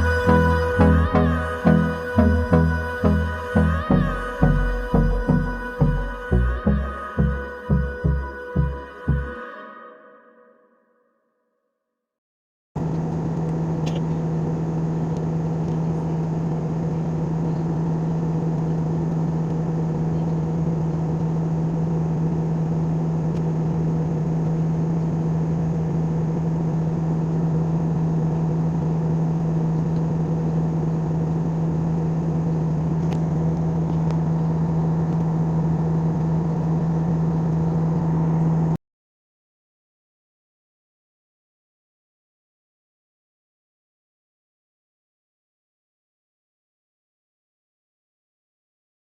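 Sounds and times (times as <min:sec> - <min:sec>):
airliner cabin drone: 0:00.0 - 0:09.5, 0:12.8 - 0:38.8.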